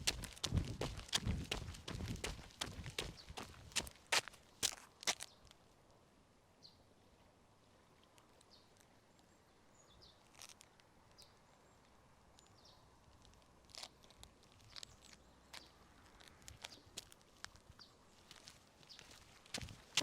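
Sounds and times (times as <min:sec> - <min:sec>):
soft footsteps: 0:00.0 - 0:05.3, 0:18.2 - 0:20.0.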